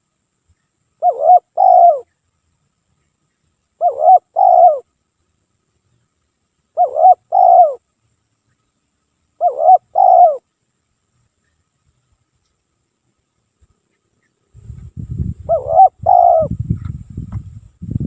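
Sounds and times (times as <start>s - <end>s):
dove cooing: 1.0s - 2.1s, 3.8s - 4.9s, 6.8s - 7.8s, 9.4s - 10.4s, 15.5s - 16.6s.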